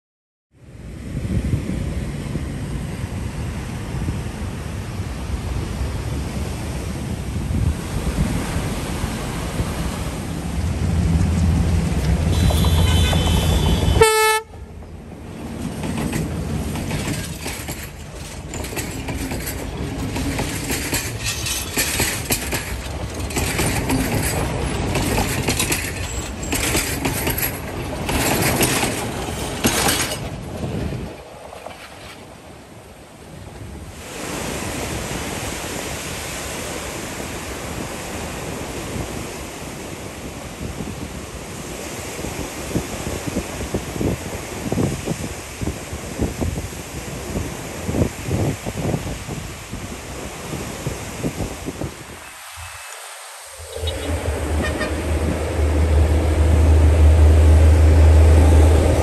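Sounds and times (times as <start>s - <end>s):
gusty rushing noise: 0.6s - 31.6s, 33.6s - 59.0s
train rumbling along track: 0.7s - 59.0s
train horn blast: 11.3s - 14.8s, 53.6s - 59.0s.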